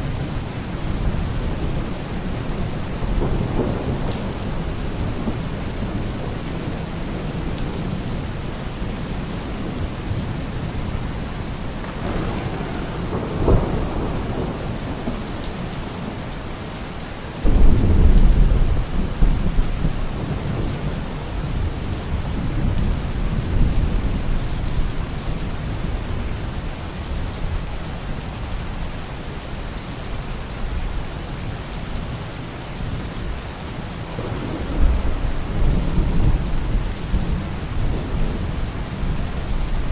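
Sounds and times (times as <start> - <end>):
heavy rain: 0.0 - 39.9
deep thunder rumble: 11.8 - 16.3, 17.4 - 26.2, 34.1 - 39.9
thunder crack: 11.9 - 15.2.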